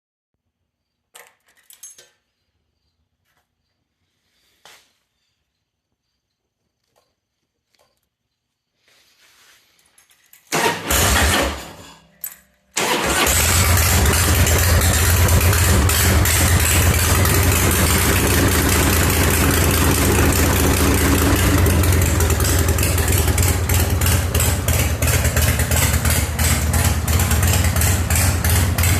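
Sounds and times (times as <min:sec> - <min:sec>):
motorcycle engine cranking: 0:09.9 - 0:28.9
motorcycle engine running: 0:13.1 - 0:28.9.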